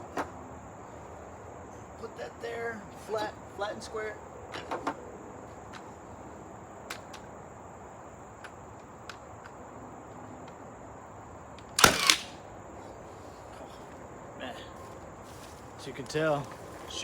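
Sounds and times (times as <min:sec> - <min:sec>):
nail gun firing: 0:11.8 - 0:12.4.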